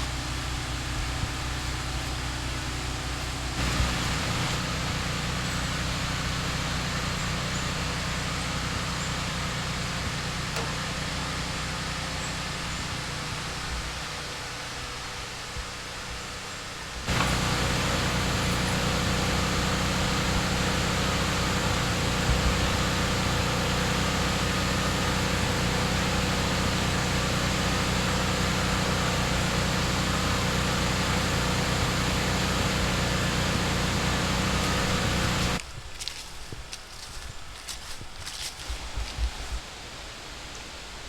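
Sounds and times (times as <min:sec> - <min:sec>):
machine engine droning: 0:00.0 - 0:35.6.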